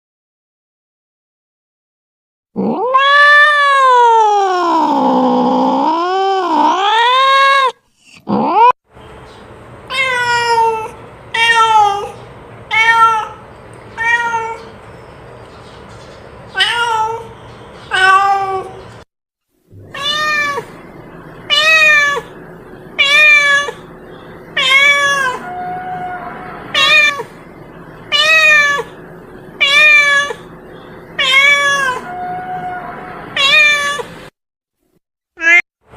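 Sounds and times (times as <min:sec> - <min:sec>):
cat meowing: 0:02.6 - 0:08.7, 0:09.9 - 0:13.4, 0:14.0 - 0:14.7, 0:16.6 - 0:17.3, 0:19.8 - 0:20.8, 0:21.5 - 0:22.3, 0:23.0 - 0:23.9, 0:24.6 - 0:27.3, 0:28.1 - 0:29.0, 0:29.6 - 0:30.5, 0:31.2 - 0:34.2, 0:35.4 - 0:35.6.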